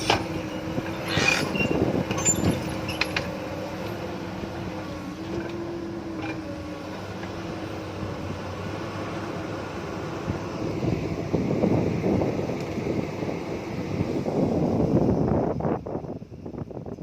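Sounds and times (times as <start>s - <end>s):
diesel engine of heavy machinery: 0.0s - 17.0s
light metal clanks: 1.1s - 3.3s.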